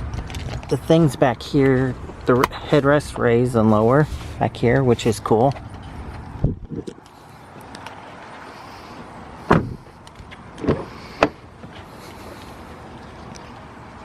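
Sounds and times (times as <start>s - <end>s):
outdoor background hum: 0.0s - 14.0s
car interior fittings clunking: 9.5s - 9.8s, 10.6s - 11.8s.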